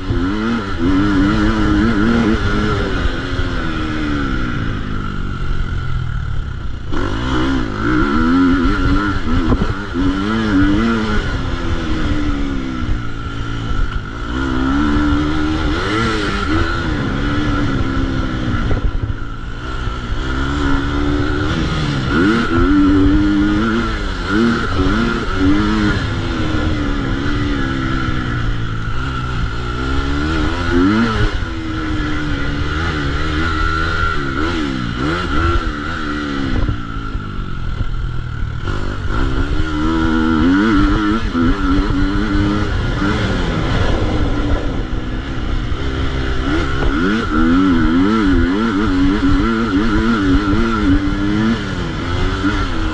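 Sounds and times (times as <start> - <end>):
motocross bike engine revving: 0.0 - 52.9.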